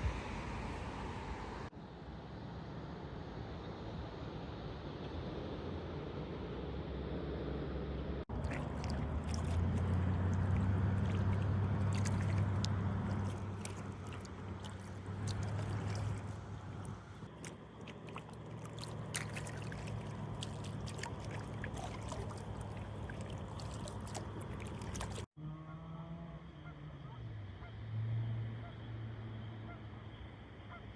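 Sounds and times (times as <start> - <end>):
low hum: 0.0 - 25.3
water trickling and dripping: 8.3 - 25.3.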